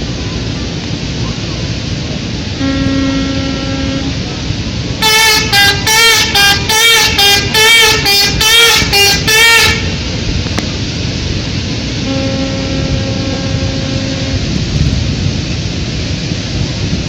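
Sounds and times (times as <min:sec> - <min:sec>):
horn blasts: 0:02.5 - 0:10.2, 0:12.0 - 0:14.8.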